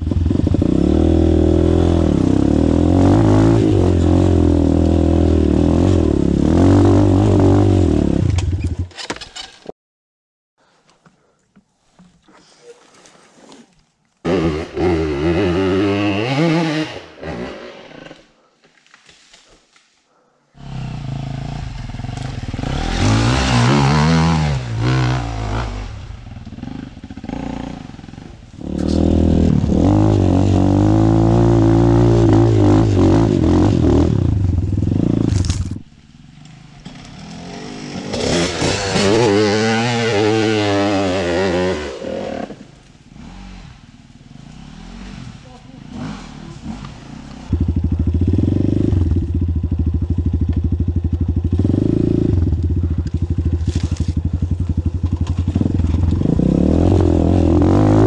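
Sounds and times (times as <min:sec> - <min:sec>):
dirt bike engines revving: 0:14.3 - 0:18.3, 0:20.6 - 0:58.0.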